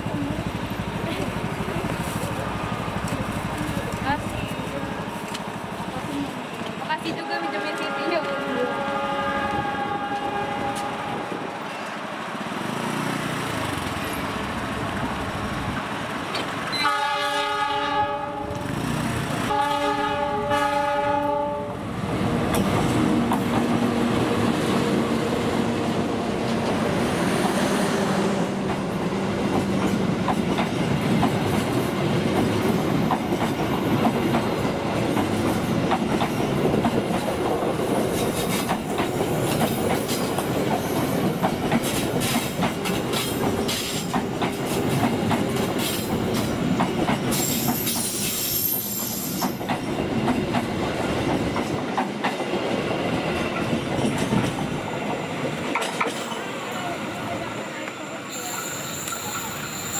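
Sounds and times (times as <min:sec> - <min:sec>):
train wheels clattering over rail joints: 0:28.7 - 0:56.5
high-pitched wheel squeal: 0:58.3 - 0:59.9.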